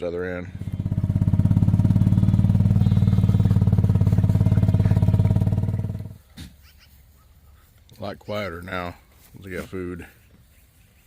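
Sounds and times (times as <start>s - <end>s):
engine running with pulsing beat: 0.5s - 6.2s.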